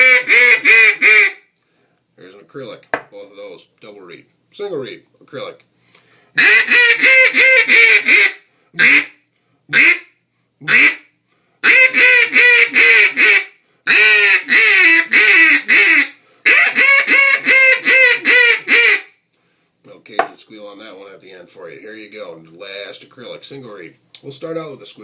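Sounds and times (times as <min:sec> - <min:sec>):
duck call quacks: 0:00.0 - 0:01.5, 0:06.4 - 0:19.1.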